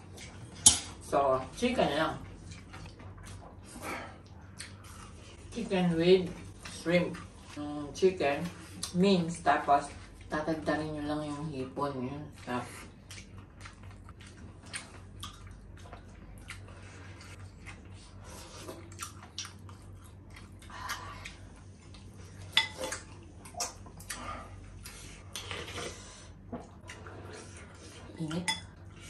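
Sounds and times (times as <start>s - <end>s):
chewing: 0.0s - 0.7s, 2.2s - 5.6s, 11.2s - 29.0s.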